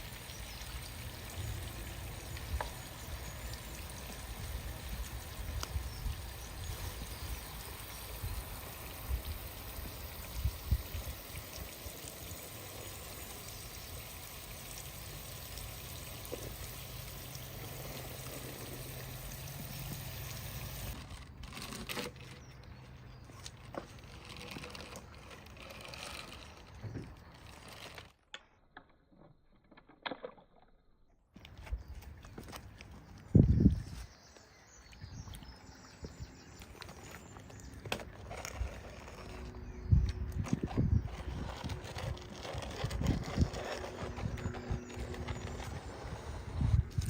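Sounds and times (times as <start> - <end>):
water pouring: 0.0 - 21.1.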